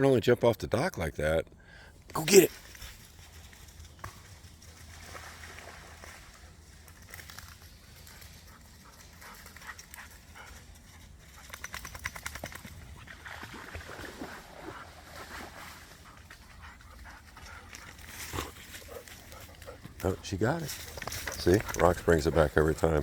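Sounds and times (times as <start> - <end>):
dog panting: 8.1 - 11.5, 16.0 - 23.0
dog moving about: 20.6 - 22.6.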